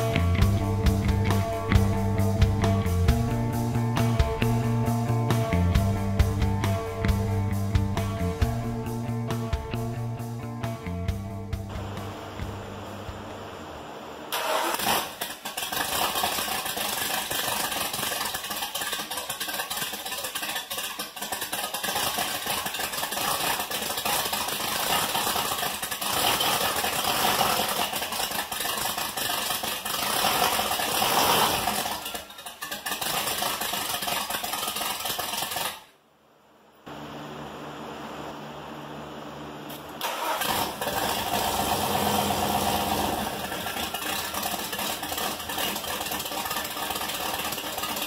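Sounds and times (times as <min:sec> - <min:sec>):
vee eight engine running loudly: 0:00.0 - 0:15.0, 0:36.9 - 0:48.0.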